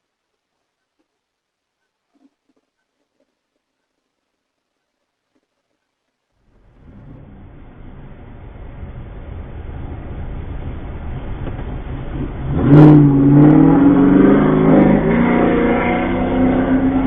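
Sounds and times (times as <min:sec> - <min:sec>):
car engine and road noise: 0:06.0 - 0:17.0
engine revving: 0:06.6 - 0:17.0.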